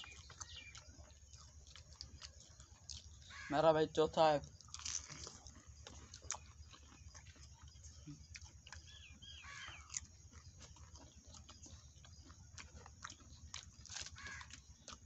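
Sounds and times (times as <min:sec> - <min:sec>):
wet chewing and mouth clicks: 0:00.0 - 0:03.6, 0:04.2 - 0:15.0
bird chirping: 0:00.0 - 0:03.9, 0:05.8 - 0:13.6.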